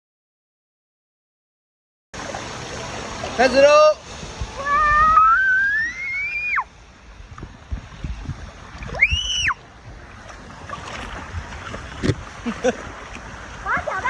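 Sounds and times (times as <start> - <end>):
rushing water: 2.2 - 14.0
high-pitched screams: 4.6 - 6.7.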